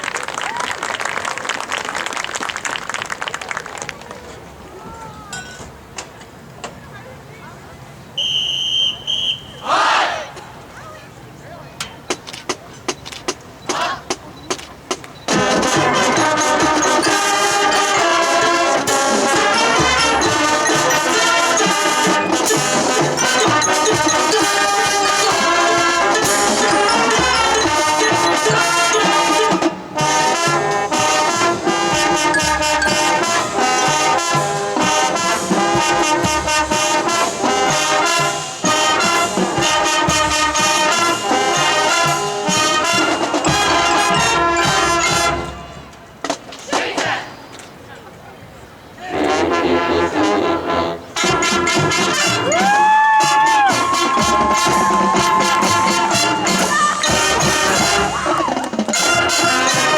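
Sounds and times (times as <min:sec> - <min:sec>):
marching band playing: 0:08.2 - 0:47.5, 0:49.0 - 0:59.9
drumline hits: 0:11.9 - 0:47.4, 0:49.1 - 0:59.9
brass section melody: 0:15.3 - 0:46.2, 0:49.0 - 0:59.9.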